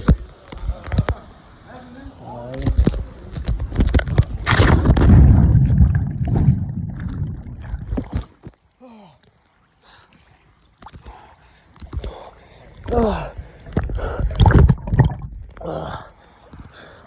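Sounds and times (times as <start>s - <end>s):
water splashing from swimming: 3.0s - 8.6s, 9.3s - 17.0s.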